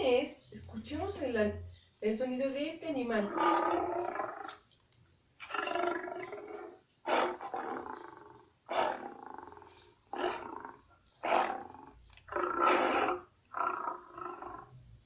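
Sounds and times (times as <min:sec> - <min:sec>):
lion roaring: 0:03.3 - 0:04.6, 0:05.4 - 0:14.7.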